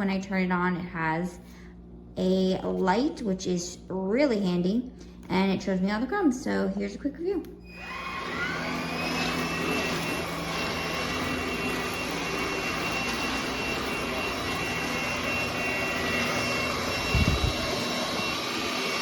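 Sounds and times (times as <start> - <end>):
vacuum cleaner running: 7.6 - 19.0.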